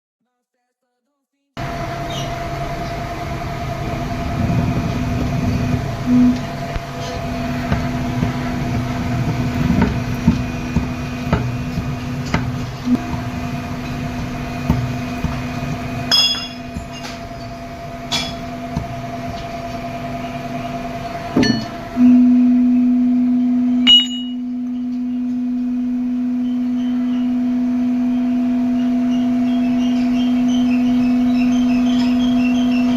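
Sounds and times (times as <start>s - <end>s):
machine humming: 1.6s - 32.9s
machine rumble: 1.6s - 32.9s
ringing metallic clinks: 16.1s - 17.1s, 23.9s - 24.4s.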